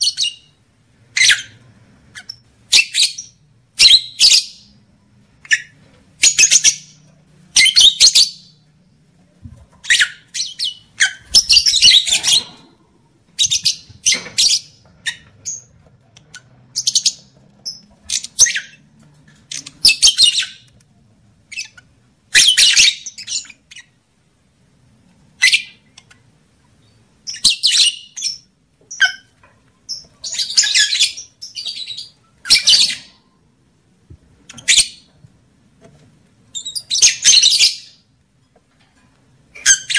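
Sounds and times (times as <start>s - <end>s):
lovebirds calling shrilly: 0.0s - 4.8s, 5.4s - 8.7s, 9.8s - 20.8s, 21.5s - 24.0s, 25.4s - 26.2s, 26.8s - 33.3s, 34.4s - 35.2s, 36.5s - 38.1s.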